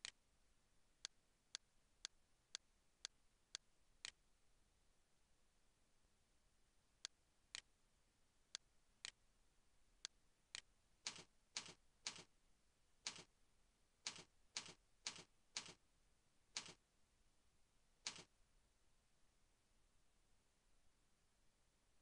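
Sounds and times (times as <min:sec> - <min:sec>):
faint sharp clicks: 0:16.6 - 0:16.8, 0:18.1 - 0:18.3.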